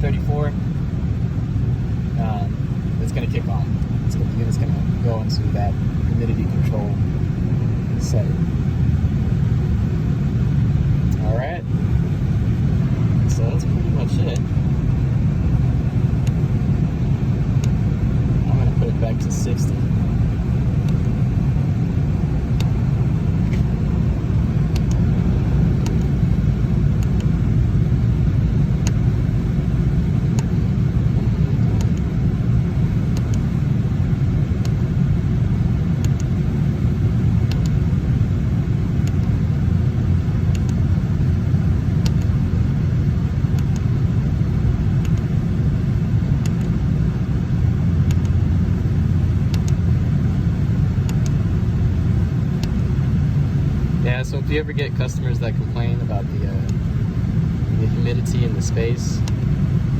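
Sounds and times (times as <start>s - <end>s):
hvac unit low rumble: 0.0s - 59.9s.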